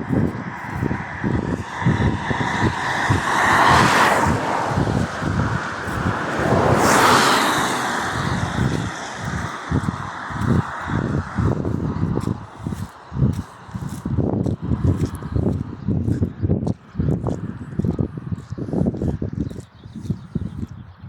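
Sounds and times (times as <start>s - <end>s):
vehicles passing: 0.0s - 20.8s
irregular low thumps: 8.2s - 20.9s.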